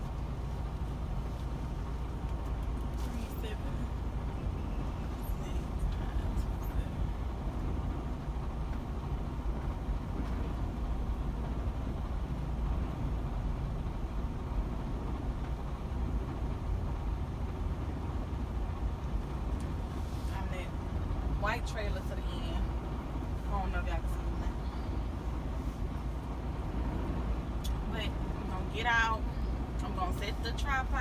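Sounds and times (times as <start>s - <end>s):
truck diesel engine rumble: 0.0s - 31.0s.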